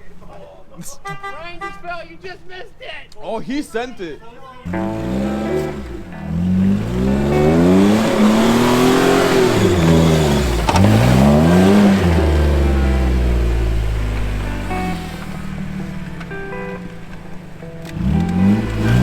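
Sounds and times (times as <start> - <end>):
car engine revving: 4.7 - 19.0.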